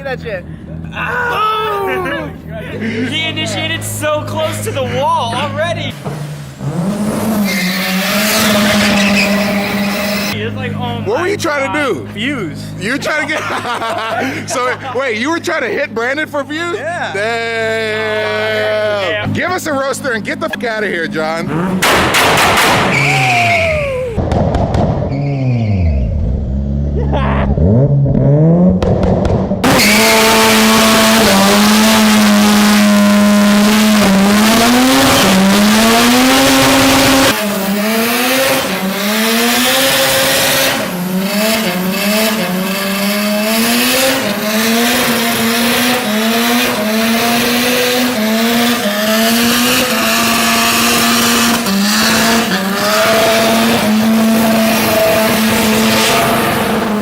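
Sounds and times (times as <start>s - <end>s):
rotary engine revving: 3.2s - 11.6s, 18.6s - 57.0s
tyres squealing: 7.2s - 10.4s, 22.8s - 24.2s.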